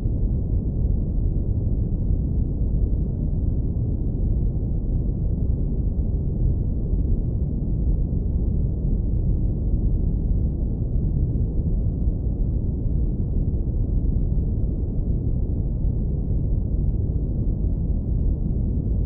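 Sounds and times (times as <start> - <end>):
deep rumbling brown noise: 0.0 - 19.0.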